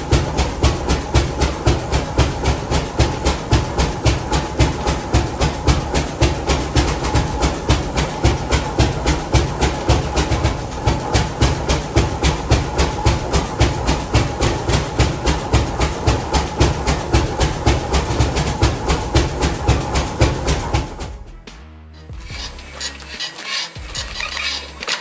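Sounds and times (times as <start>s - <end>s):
old engine exhaust beating: 0.0s - 25.0s.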